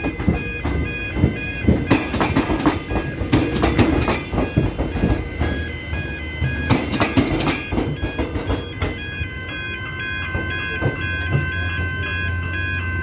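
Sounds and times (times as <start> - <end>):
train wheels clattering over rail joints: 0.0 - 9.2
level crossing warning bell: 0.0 - 13.0.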